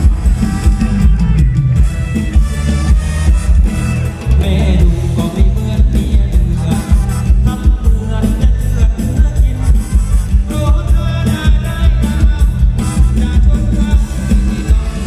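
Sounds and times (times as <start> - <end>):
live band with bass and drums: 0.0 - 15.0
person singing: 4.2 - 15.0.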